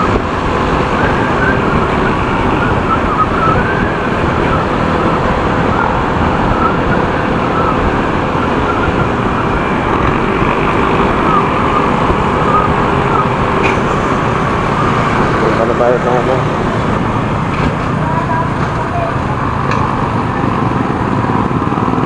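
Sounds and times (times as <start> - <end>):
motorcycle engine running: 0.0 - 22.0
wind and road noise: 0.0 - 22.0
faint wavering high tone: 0.9 - 16.4.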